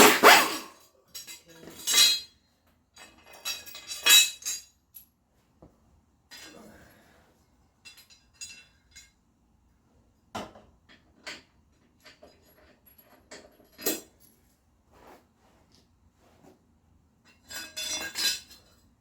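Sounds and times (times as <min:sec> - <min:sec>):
metal clinks and clanks: 0:00.0 - 0:02.4, 0:03.0 - 0:05.0, 0:07.8 - 0:09.2, 0:11.2 - 0:14.4, 0:17.3 - 0:19.0.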